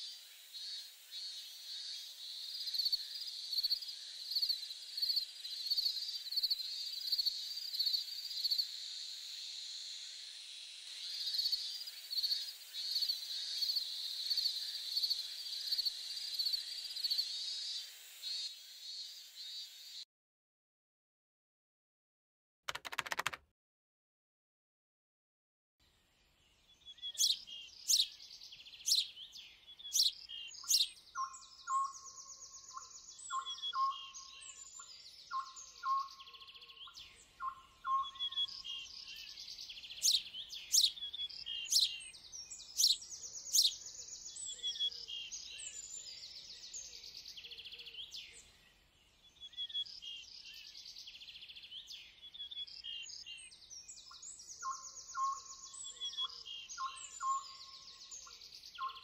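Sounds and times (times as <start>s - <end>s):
birds chirping: 26.7s - 59.0s.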